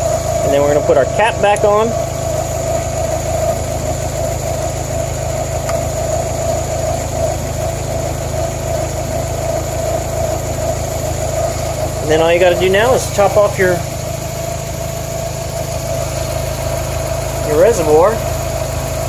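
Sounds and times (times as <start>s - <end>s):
car engine idling: 0.0s - 19.0s
steady mid-pitched whine: 0.0s - 19.0s.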